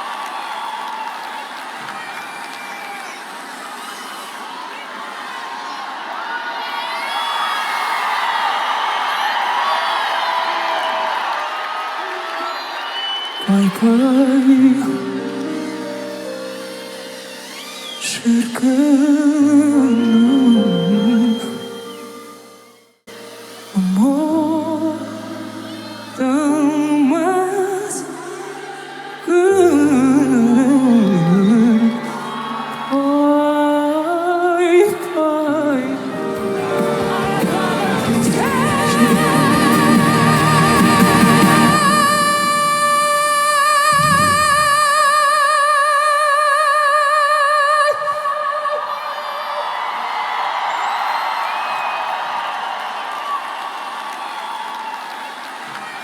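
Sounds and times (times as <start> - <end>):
person singing wordlessly: 13.4 - 16.6, 18.0 - 22.2, 23.8 - 49.4.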